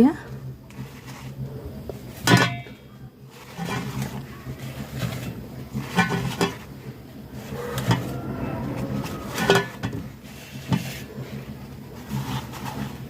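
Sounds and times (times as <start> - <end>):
steady low hum: 6.5 - 12.0.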